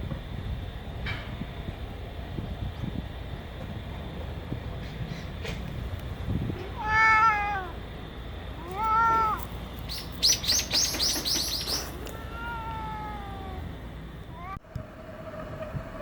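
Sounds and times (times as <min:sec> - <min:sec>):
cat meowing: 0:06.6 - 0:07.8, 0:08.6 - 0:09.5, 0:11.9 - 0:13.7, 0:14.3 - 0:14.6.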